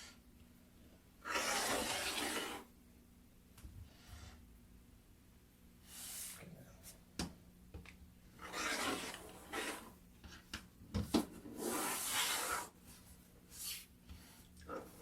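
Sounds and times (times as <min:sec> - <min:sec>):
blade scraping through fabric: 0:01.3 - 0:02.7, 0:08.4 - 0:10.0, 0:11.5 - 0:12.8.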